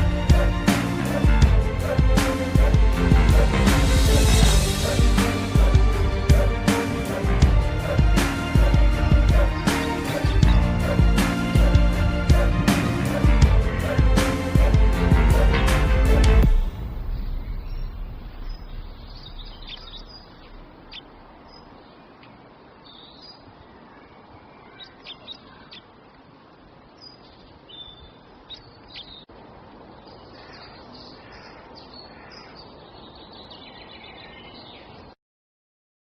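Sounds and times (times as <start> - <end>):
small birds chirping: 4.8 - 11.8, 17.0 - 35.2
steady background hiss: 16.5 - 35.2.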